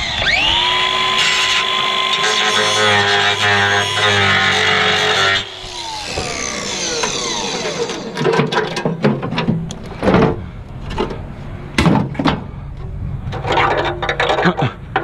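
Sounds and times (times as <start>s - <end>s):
falling tone: 5.0s - 8.2s
clicks and knocks of hard objects: 8.2s - 11.2s, 11.8s - 15.0s.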